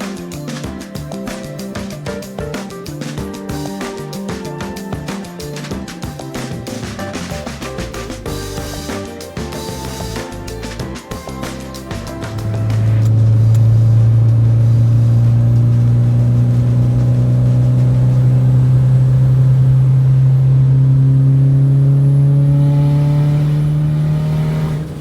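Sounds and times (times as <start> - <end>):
car engine revs climbing: 12.0 - 25.0.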